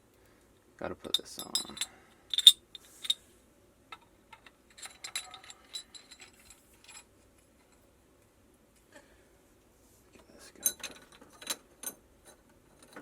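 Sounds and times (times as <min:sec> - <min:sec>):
metal plumbing parts clinking: 0:01.0 - 0:03.2, 0:03.9 - 0:07.8, 0:10.6 - 0:13.0.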